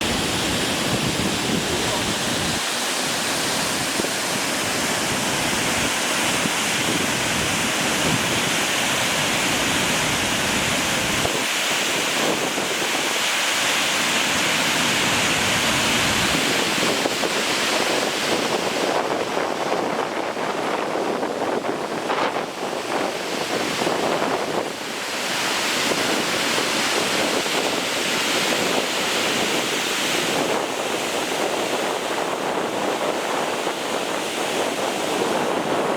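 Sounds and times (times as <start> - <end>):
waterfall rushing: 0.0 - 20.2
wind buffeting microphone: 0.0 - 35.9.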